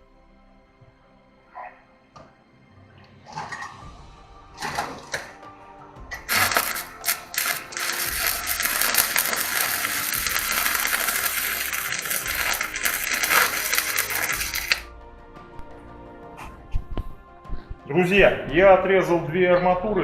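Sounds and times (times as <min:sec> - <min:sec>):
arc welding crackling: 0:06.2 - 0:14.9.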